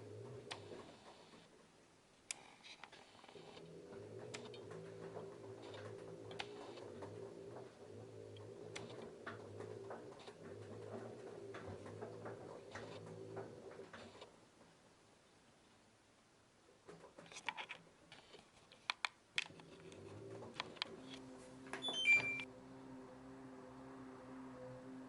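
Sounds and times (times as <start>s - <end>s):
washing machine motor humming: 0.0s - 1.5s, 3.4s - 14.4s, 19.8s - 25.0s.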